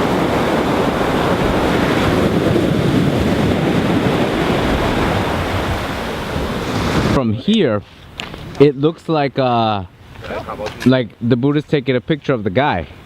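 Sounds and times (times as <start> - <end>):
ocean waves breaking on beach: 0.0 - 8.6
wind buffeting microphone: 0.0 - 10.8.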